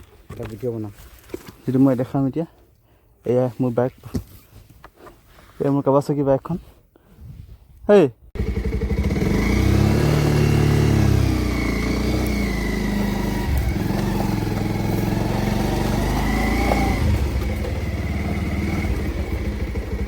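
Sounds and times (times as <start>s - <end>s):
motorcycle engine revving: 8.4s - 20.0s.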